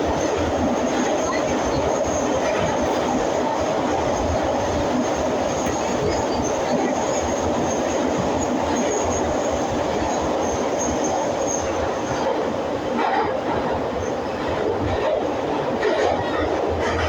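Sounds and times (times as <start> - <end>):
train wheels rumbling in tunnel: 0.0 - 17.0.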